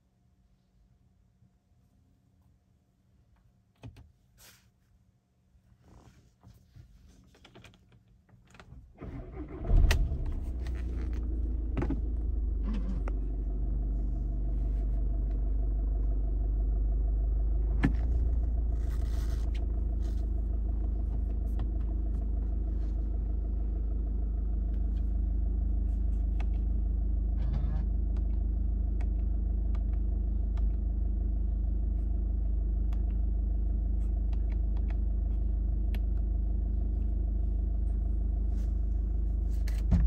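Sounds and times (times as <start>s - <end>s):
diesel engine idling: 9.0s - 40.0s.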